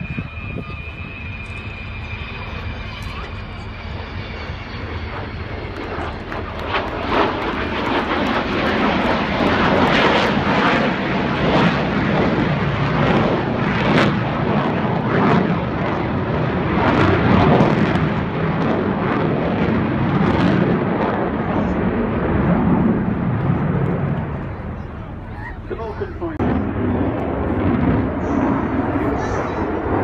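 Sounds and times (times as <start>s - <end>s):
aircraft engine roar: 0.0s - 30.0s.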